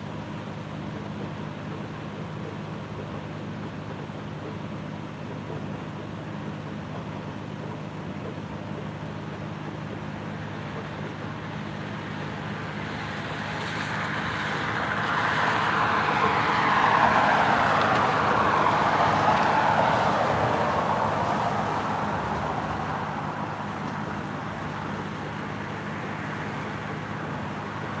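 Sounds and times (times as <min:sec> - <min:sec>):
road vehicle passing: 0:10.5 - 0:28.0.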